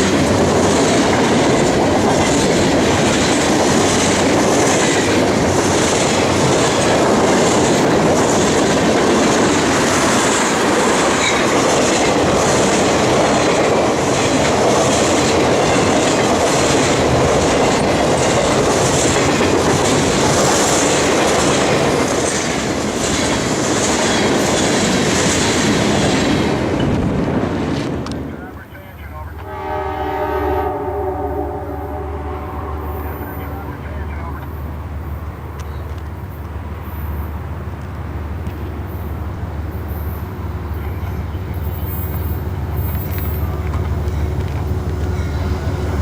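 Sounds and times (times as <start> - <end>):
wheels clickety-clack on track: 0.0 - 29.6, 33.1 - 46.0
train wheels rumbling on rail: 0.0 - 46.0.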